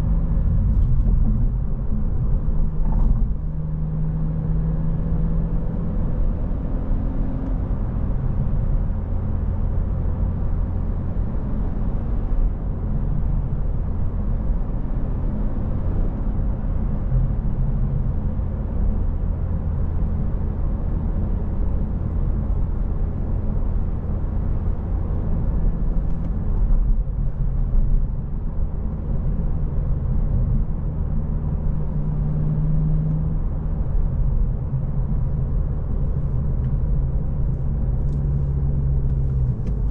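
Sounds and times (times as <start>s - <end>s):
car engine running: 0.0s - 4.1s, 33.3s - 39.9s
road noise: 0.0s - 39.9s.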